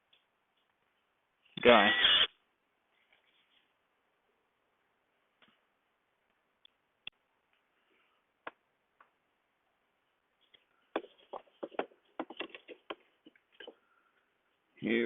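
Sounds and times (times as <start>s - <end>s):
tools and wooden parts handled: 11.0s - 13.8s.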